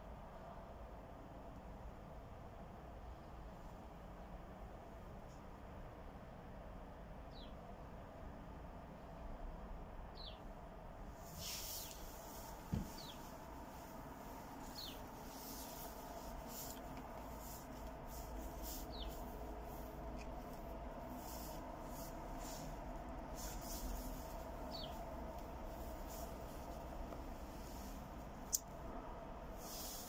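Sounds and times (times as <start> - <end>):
steady low hum: 0.0 - 30.0
bird chirping: 7.3 - 7.6, 10.1 - 10.5, 12.8 - 13.3, 14.6 - 15.9, 18.2 - 20.3, 24.6 - 25.0.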